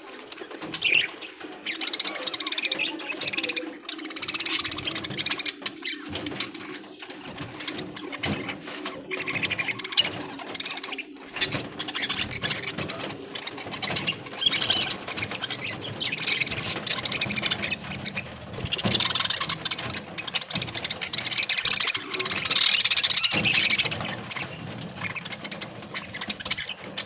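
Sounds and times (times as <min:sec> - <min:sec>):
budgerigars chattering: 0:00.8 - 0:27.0.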